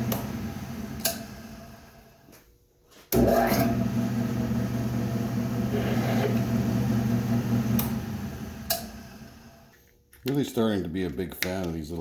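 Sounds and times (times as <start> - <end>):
drilling machine motor humming: 3.2 - 9.7.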